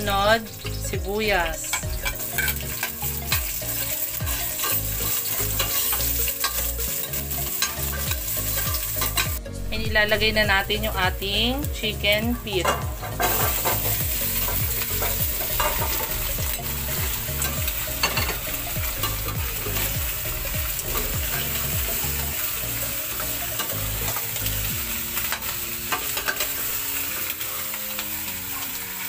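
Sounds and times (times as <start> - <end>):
food sizzling in hot oil: 0.0 - 29.0
spatula scraping and knocking pot: 12.6 - 16.6.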